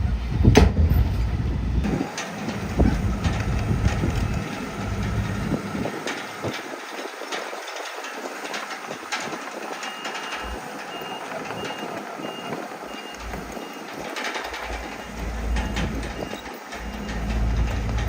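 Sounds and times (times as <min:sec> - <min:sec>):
heavy machinery running: 0:00.0 - 0:18.0
truck reversing alarm beeping: 0:09.5 - 0:18.0.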